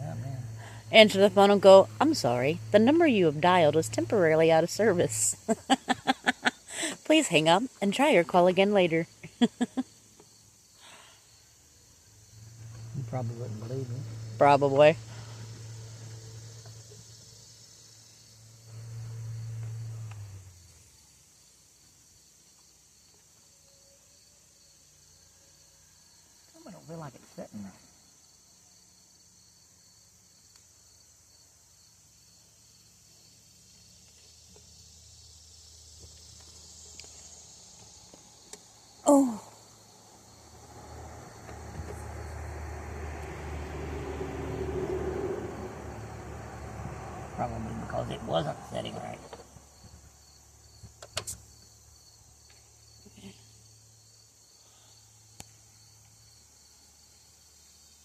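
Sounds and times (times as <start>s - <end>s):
low hum: 0.0s - 6.5s, 11.4s - 21.2s
crickets chirping: 0.0s - 58.0s
steady high-pitched hiss: 0.0s - 58.0s.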